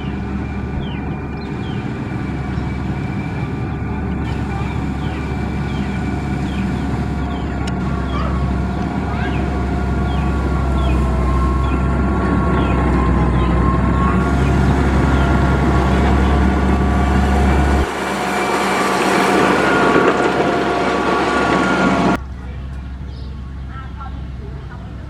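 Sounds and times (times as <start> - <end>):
diesel machine deep rumble: 0.0 - 25.0
thin high whine: 13.8 - 22.2.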